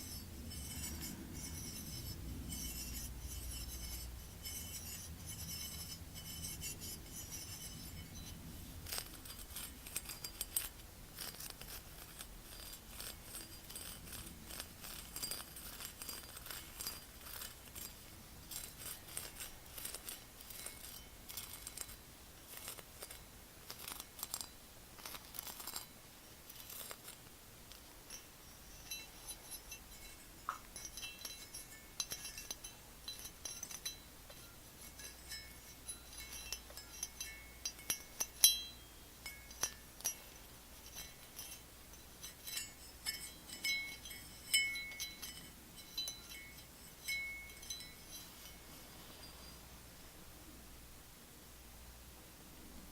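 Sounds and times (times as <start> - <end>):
tapping and scratching on hard objects: 0.0 - 25.9, 26.5 - 28.2.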